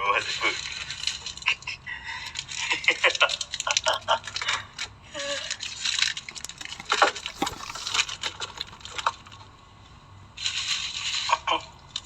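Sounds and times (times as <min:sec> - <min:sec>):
wrappers rustling: 0:06.4 - 0:09.4.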